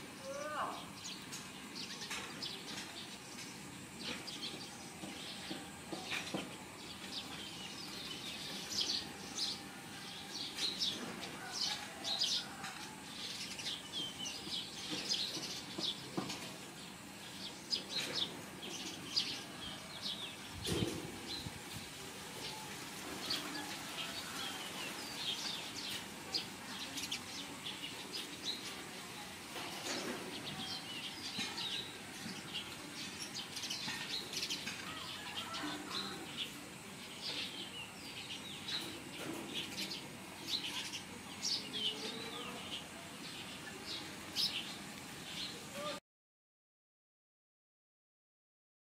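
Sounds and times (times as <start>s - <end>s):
small birds chirping and twittering: 0.0s - 46.0s.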